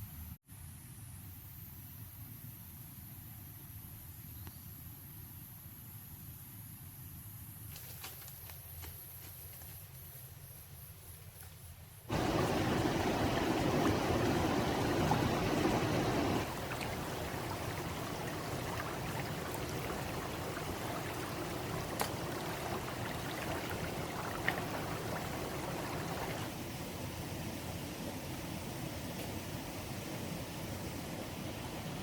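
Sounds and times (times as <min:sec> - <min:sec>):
running water rushing: 0:12.1 - 0:32.0.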